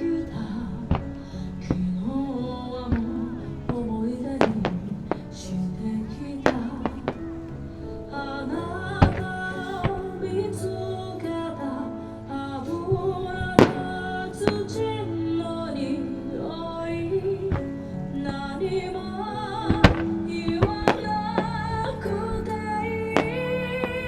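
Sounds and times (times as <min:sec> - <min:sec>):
fireworks bursting: 0:00.0 - 0:11.4, 0:15.8 - 0:24.0
pop song with female singer: 0:00.0 - 0:24.0.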